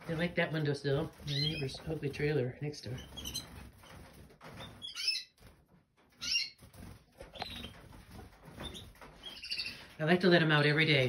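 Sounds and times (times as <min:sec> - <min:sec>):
wings flapping: 0:00.0 - 0:10.6
canaries chirping: 0:00.0 - 0:11.0.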